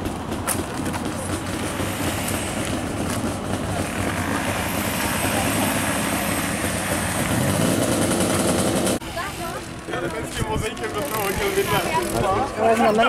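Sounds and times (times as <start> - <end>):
two-stroke engine revving: 0.0 - 9.8.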